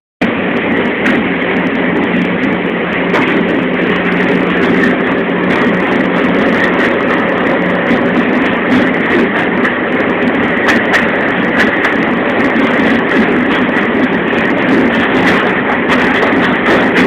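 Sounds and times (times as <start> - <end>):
train rumbling on track: 0.2 - 17.0
wheels clicking on rails: 0.2 - 17.0.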